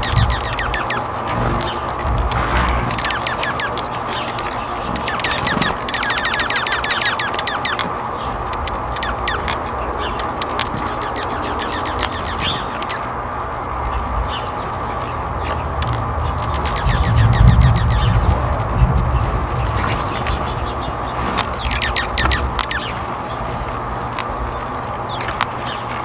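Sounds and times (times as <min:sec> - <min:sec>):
small birds chirping: 0:00.0 - 0:26.0
steady low hiss: 0:00.0 - 0:26.0.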